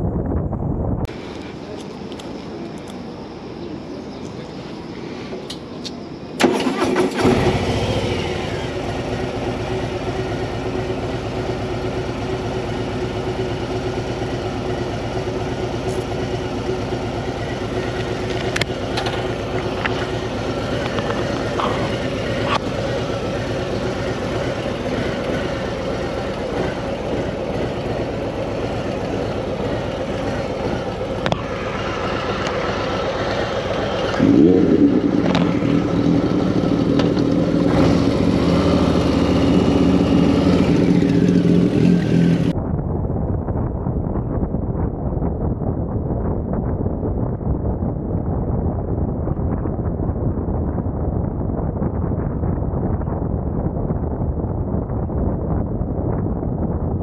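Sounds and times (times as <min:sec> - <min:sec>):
motorcycle engine idling and revving: 0:06.3 - 0:57.0.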